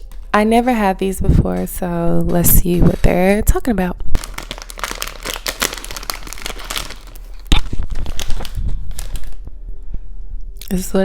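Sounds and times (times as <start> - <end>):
plastic bag crinkling: 4.1 - 9.5.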